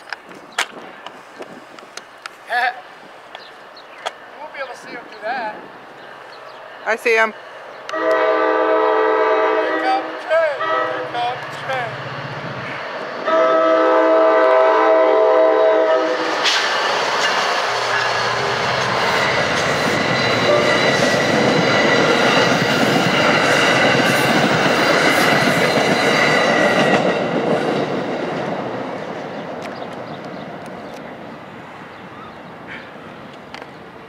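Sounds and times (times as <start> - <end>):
train horn: 7.9 - 11.5, 13.2 - 16.5, 20.2 - 21.1
train wheels clattering over rails: 16.2 - 31.1.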